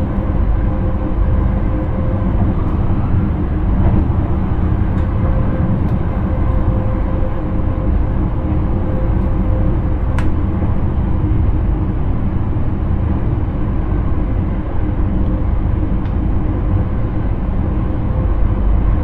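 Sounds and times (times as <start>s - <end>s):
faint steady hum: 0.0s - 19.0s
train running rumble: 0.0s - 19.0s.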